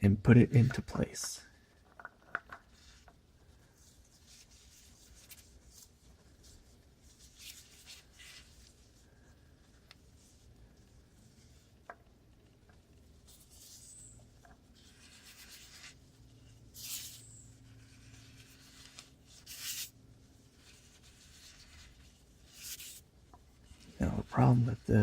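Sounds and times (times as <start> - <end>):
hands rubbing oil filter: 2.6 - 24.5
short hissing rubs: 13.3 - 23.0.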